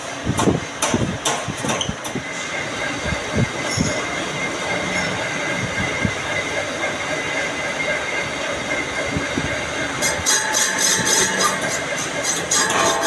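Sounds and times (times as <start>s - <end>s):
metal lathe cutting metal: 2.2s - 13.0s.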